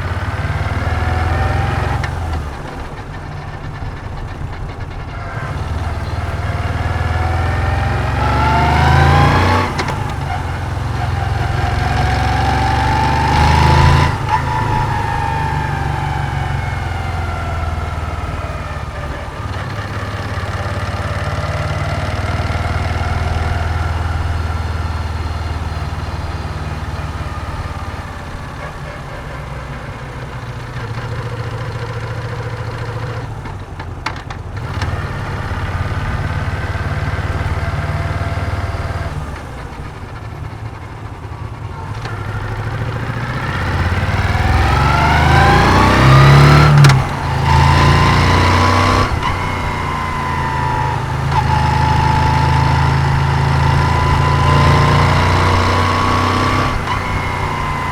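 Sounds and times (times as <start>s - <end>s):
motorcycle engine: 0.0s - 57.9s.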